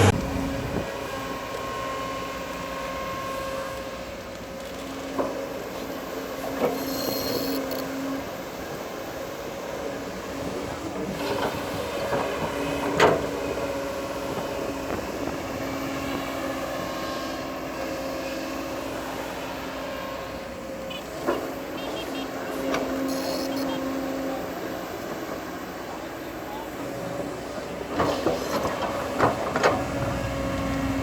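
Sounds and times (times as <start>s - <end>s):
bulldozer engine running: 0.0s - 31.0s
high squeal: 6.8s - 7.8s, 23.0s - 23.8s.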